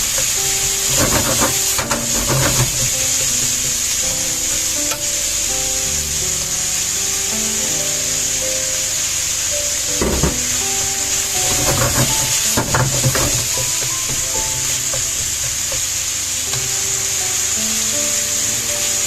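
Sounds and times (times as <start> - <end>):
utensil scraping a pan: 0.0 - 5.5, 10.0 - 17.0
stir-fry sizzling in a pan: 0.0 - 19.0.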